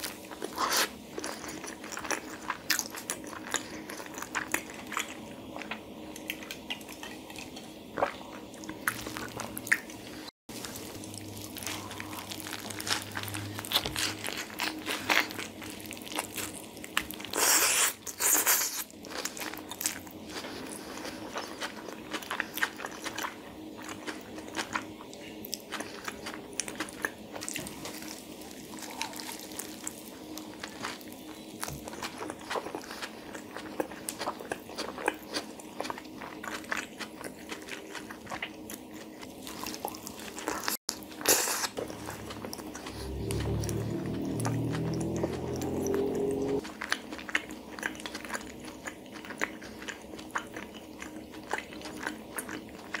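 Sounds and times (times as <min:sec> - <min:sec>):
wrap being bitten and chewed: 0:10.6 - 0:24.9, 0:25.5 - 0:53.0.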